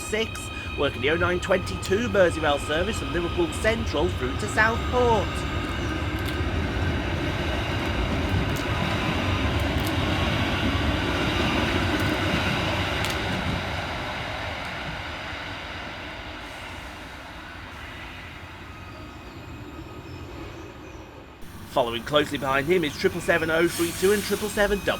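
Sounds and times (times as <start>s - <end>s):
electric train whine: 0.0s - 24.9s
wheel-on-rail rumble: 21.4s - 24.9s.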